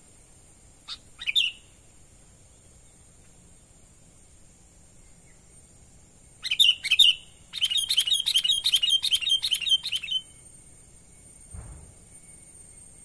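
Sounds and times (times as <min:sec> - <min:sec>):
bird chirping: 0:00.8 - 0:01.8, 0:05.0 - 0:10.4.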